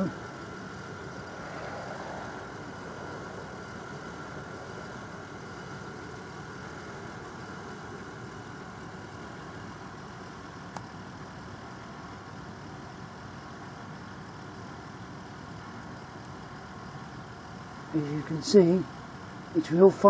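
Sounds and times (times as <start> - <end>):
mechanical rumble: 0.0 - 10.4
faint steady hum: 0.0 - 20.0.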